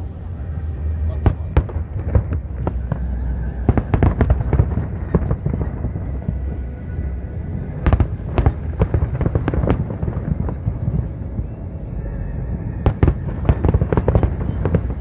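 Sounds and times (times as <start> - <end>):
fireworks crackling bursts: 0.0 - 6.7, 7.8 - 11.1
steady low rumble: 0.0 - 15.0
fireworks bangs: 0.8 - 6.6, 7.7 - 11.1, 12.8 - 15.0.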